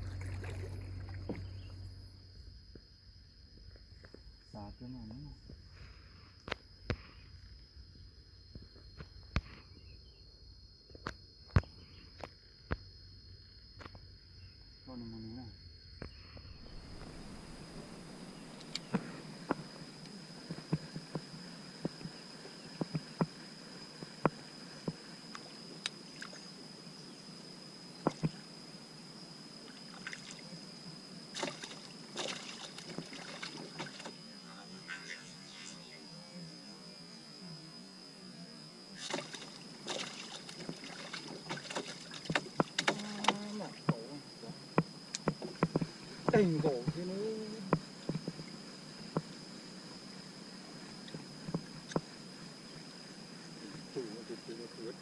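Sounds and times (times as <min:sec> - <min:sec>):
paddle strokes and splashing: 0:00.0 - 0:01.8, 0:31.4 - 0:34.2, 0:39.0 - 0:43.8
insects droning: 0:00.0 - 0:55.0
steady high-pitched tone: 0:16.4 - 0:20.1
wooden knocks against hull: 0:39.1 - 0:44.0.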